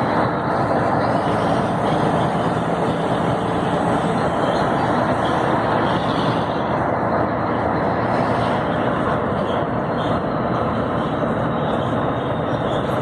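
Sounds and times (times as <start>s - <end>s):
road noise: 0.0s - 13.0s
truck diesel engine driving: 0.0s - 13.0s.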